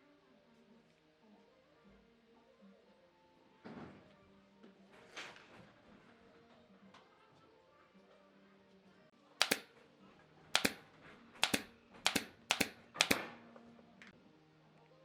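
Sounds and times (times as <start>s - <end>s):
faint background music: 0.0s - 15.0s
tool striking wood knocks: 9.4s - 9.6s, 10.6s - 10.8s, 11.4s - 13.2s.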